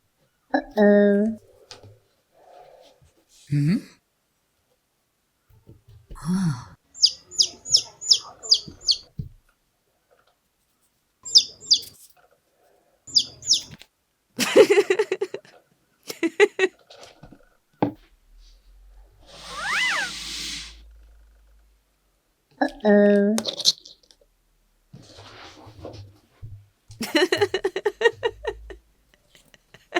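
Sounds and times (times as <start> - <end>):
high bird-like chirps: 6.9 - 9.1, 11.2 - 11.9, 13.1 - 13.8, 19.3 - 20.8.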